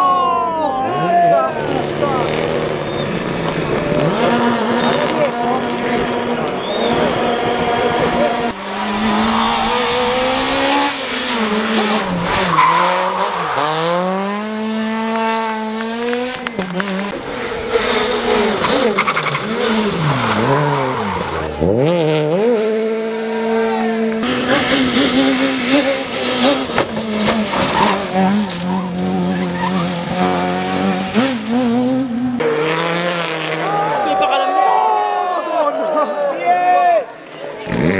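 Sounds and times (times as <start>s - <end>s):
tyres squealing and skidding: 0.0s - 14.4s, 17.4s - 21.7s, 24.4s - 30.9s
rally car engines revving: 0.0s - 35.2s, 37.0s - 37.9s.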